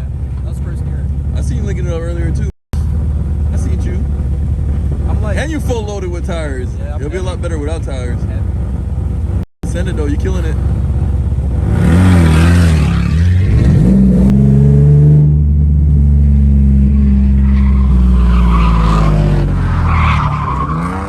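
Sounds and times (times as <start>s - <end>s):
tyres skidding: 0.0s - 21.0s
car engine revving hard: 11.6s - 21.0s.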